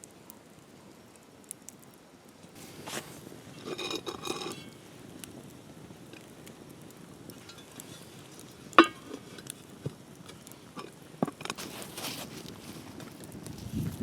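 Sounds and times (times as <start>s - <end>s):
short rustling hiss: 2.5s - 4.8s.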